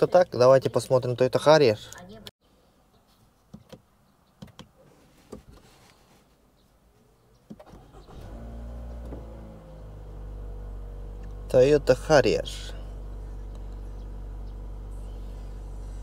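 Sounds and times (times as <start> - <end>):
car engine starting and idling: 7.6 - 16.0.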